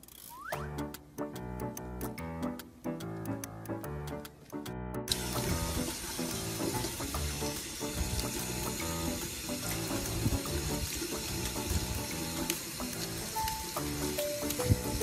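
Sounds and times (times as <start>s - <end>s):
background music: 0.3s - 15.0s
hose water pouring into metal bowl: 5.1s - 15.0s.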